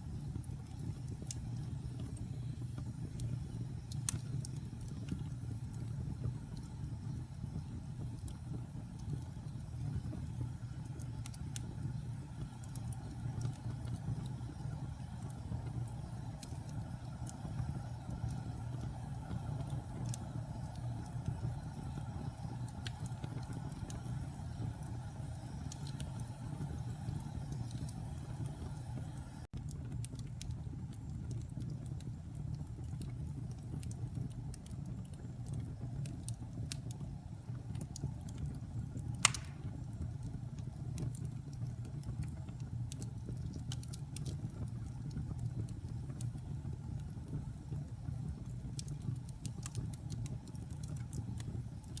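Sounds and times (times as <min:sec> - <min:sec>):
fire flames rumbling: 0:00.0 - 0:52.0
wood fire crackling: 0:00.0 - 0:52.0
loud fire pop: 0:39.2 - 0:39.9.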